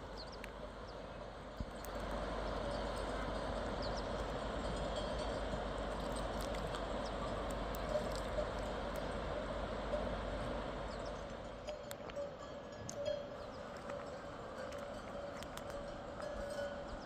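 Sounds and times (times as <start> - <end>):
faint clicks: 1.6 - 2.3.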